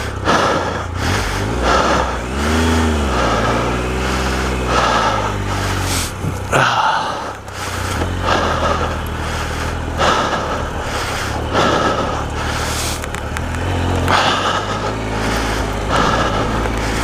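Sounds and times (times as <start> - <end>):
motorcycle engine running: 0.0 - 17.0
person breathing heavily: 0.0 - 17.0.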